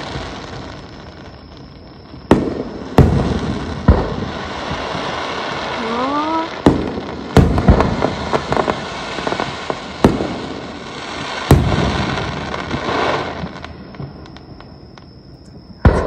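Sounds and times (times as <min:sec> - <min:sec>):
fireworks bangs: 0:00.0 - 0:16.0
fireworks crackling and rumbling: 0:00.0 - 0:16.0.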